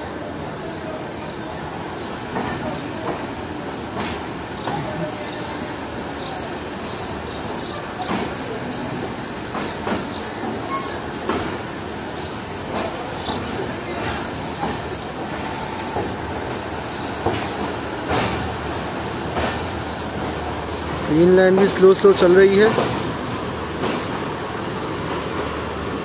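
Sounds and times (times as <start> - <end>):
train wheels rumbling: 0.0 - 26.0
clicks and clanks over rail joints: 17.2 - 18.5.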